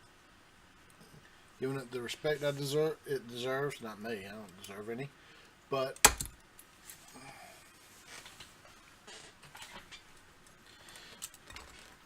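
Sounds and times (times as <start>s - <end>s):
plastic parts clicking and rustling: 9.5s - 12.0s.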